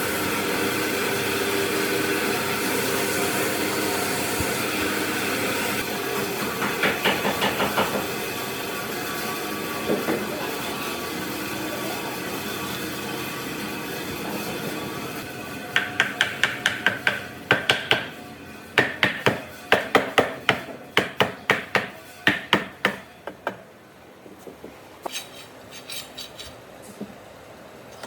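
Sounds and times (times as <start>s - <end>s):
steady machine noise: 10.5s - 23.6s
hammer striking metal: 15.7s - 18.2s, 18.8s - 23.6s.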